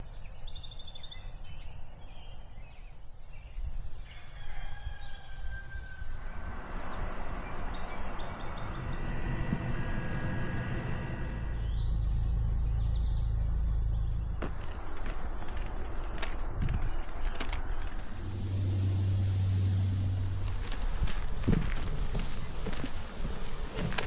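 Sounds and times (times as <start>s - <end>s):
birds chirping: 0.0s - 24.0s
low background rumble: 5.2s - 24.0s.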